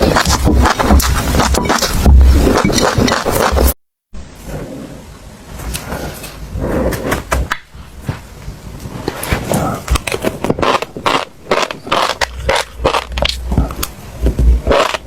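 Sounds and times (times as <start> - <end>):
chewing crunchy seeds: 9.5 - 15.0.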